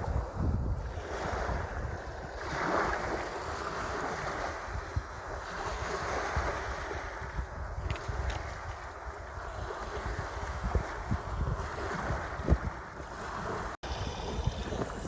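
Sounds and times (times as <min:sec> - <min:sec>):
wind buffeting microphone: 0:00.0 - 0:15.0
sea waves washing: 0:08.1 - 0:15.0.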